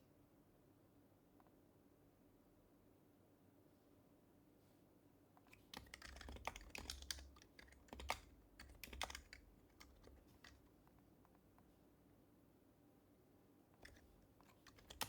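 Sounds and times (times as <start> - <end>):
soft muted keyboard typing: 5.4 - 11.6, 13.8 - 15.0.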